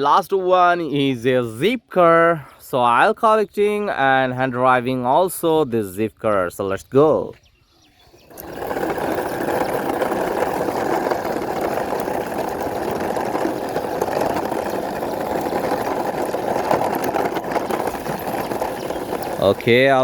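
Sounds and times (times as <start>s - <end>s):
toy wheels rolling on hard surface: 8.1s - 20.0s.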